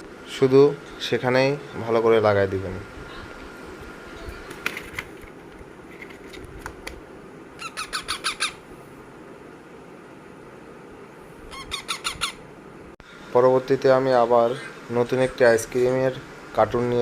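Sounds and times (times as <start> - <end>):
parakeet squawks: 7.6 - 8.6, 11.5 - 12.4.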